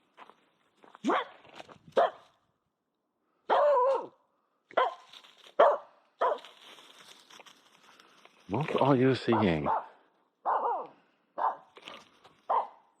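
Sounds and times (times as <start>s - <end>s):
dog barking: 1.0s - 1.4s, 2.0s - 2.3s, 3.5s - 6.5s, 9.2s - 11.7s, 12.5s - 13.0s.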